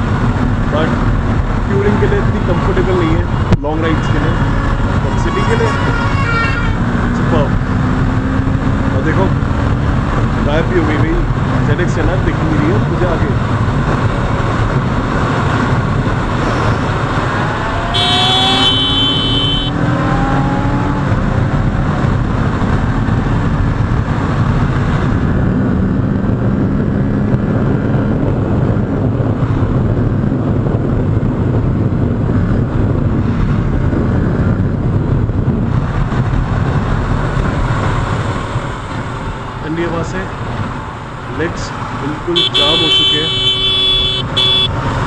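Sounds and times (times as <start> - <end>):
motorcycle engine: 0.0 - 29.7, 32.0 - 45.0
wind rushing over microphone: 0.0 - 45.0
horn: 17.9 - 19.8.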